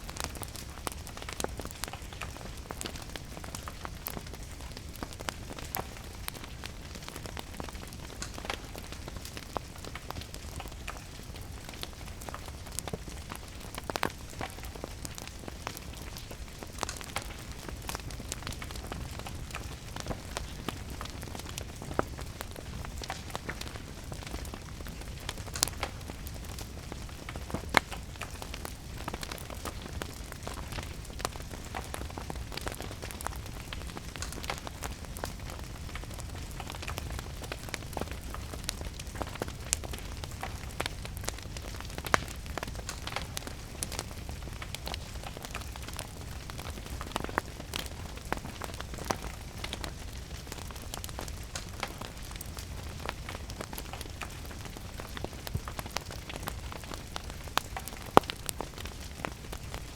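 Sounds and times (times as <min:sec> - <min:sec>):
rain pattering: 0:00.0 - 0:59.9
wood fire crackling and popping: 0:00.0 - 0:59.9.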